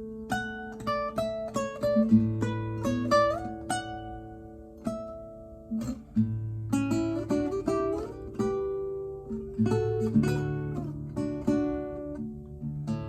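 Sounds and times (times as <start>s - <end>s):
classical guitar playing: 0.0s - 13.0s.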